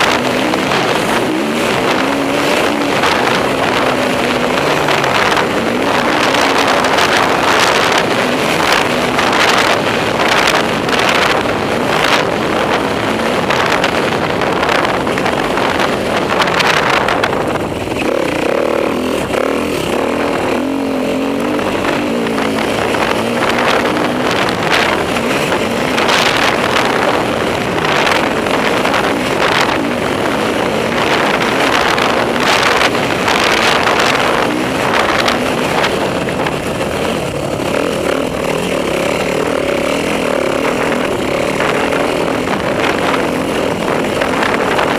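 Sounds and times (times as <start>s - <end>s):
motorcycle engine revving: 0.0s - 44.9s
wind buffeting microphone: 0.0s - 44.9s.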